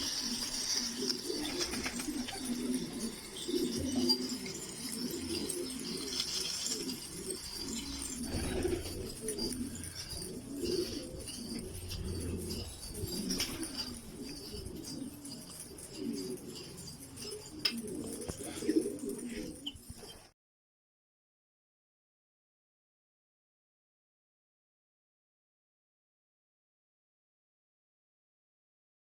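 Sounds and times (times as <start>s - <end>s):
pigeons cooing: 0.0s - 20.3s.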